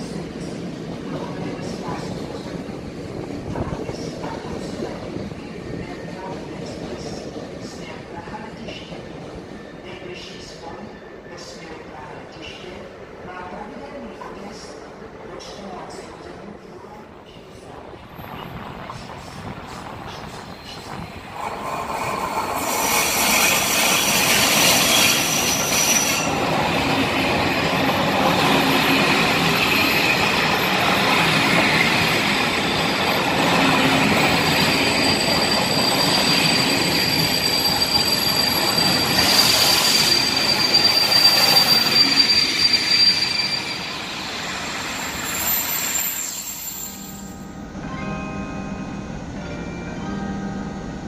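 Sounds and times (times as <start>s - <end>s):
train rolling past: 0.0s - 48.0s
high-pitched wheel squeal: 34.2s - 47.3s.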